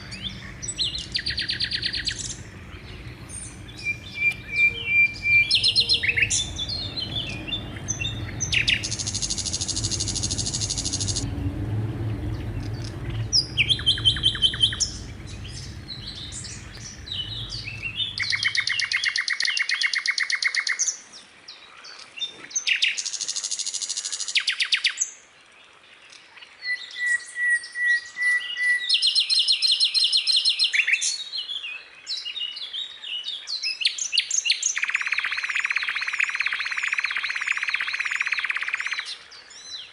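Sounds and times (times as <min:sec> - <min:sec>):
low rumble: 0:00.0 - 0:19.0
skylark singing: 0:00.0 - 0:19.3.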